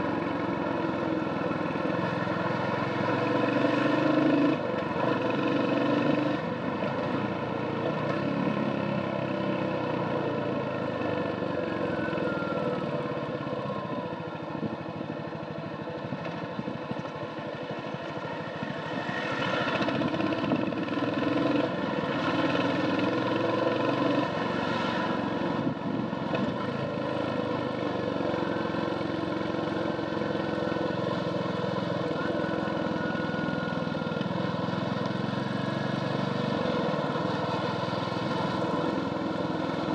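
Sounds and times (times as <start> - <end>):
motorcycle engine running: 12.9 - 39.9.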